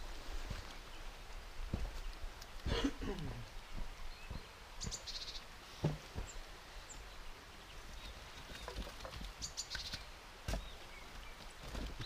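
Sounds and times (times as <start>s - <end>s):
steady background hiss: 0.0s - 12.0s
songbird trilling and chirping: 3.7s - 5.5s, 6.2s - 11.4s
campfire wood knocks and crackles: 5.8s - 6.4s, 8.4s - 12.0s.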